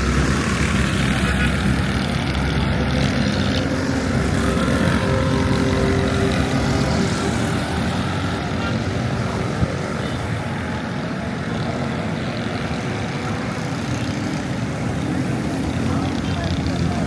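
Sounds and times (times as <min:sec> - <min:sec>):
low engine rumble: 0:00.0 - 0:13.6
street noise: 0:00.0 - 0:17.0.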